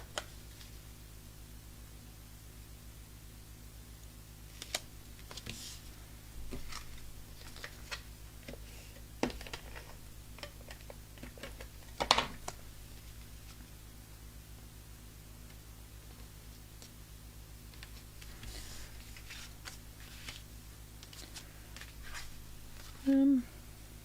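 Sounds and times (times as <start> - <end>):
steady low hum: 0.0 - 24.0
paper rustling: 4.5 - 5.9, 6.5 - 8.6, 17.7 - 23.0.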